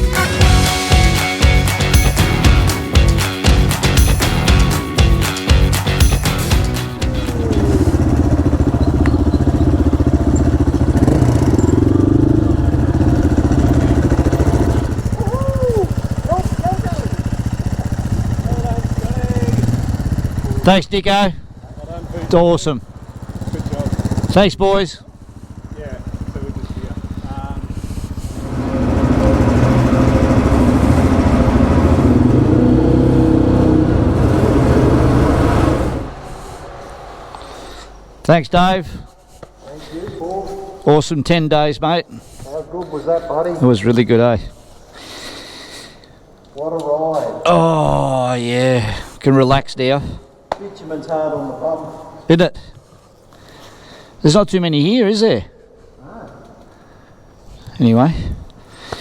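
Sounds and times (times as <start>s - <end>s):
motorcycle engine running: 0.0s - 38.2s.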